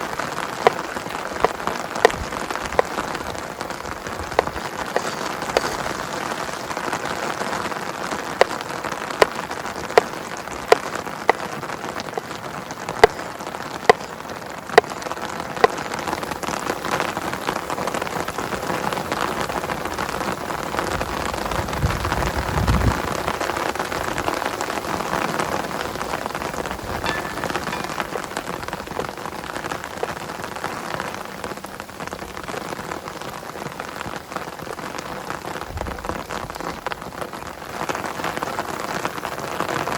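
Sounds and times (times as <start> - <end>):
heavy rain falling: 0.0 - 39.9
single raindrops tapping: 26.7 - 29.0.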